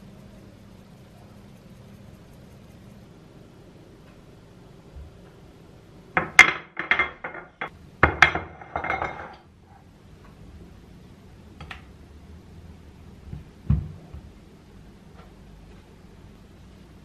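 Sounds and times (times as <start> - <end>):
dishes and utensils clinking: 6.2 - 9.5.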